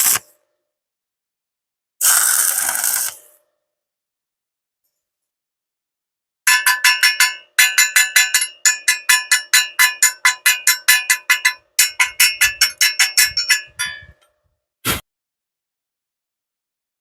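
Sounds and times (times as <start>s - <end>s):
rapid metallic tapping: 6.5s - 14.2s.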